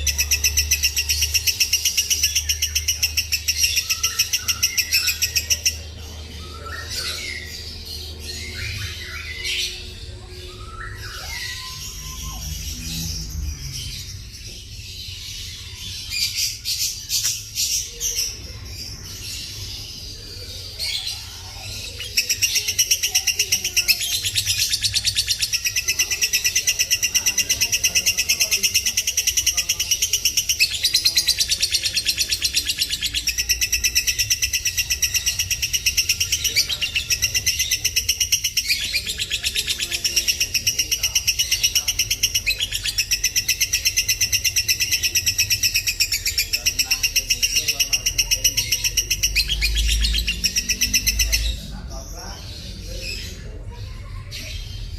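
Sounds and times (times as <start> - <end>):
lovebird fast chattering song: 0.0 - 10.1, 10.9 - 53.4
lovebird chirping: 8.4 - 51.6.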